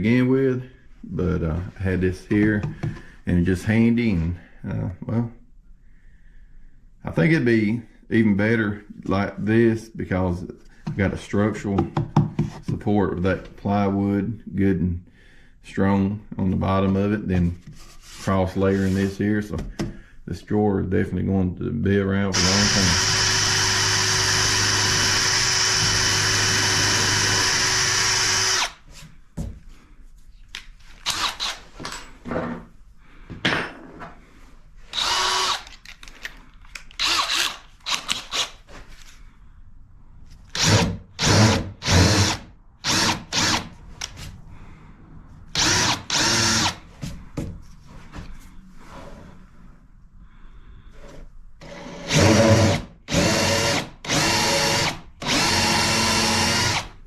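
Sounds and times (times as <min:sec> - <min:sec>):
power drill running: 0:22.3 - 0:28.8, 0:31.0 - 0:31.6, 0:34.9 - 0:35.8, 0:37.0 - 0:38.5, 0:40.6 - 0:43.7, 0:45.6 - 0:46.8, 0:51.6 - 0:57.0.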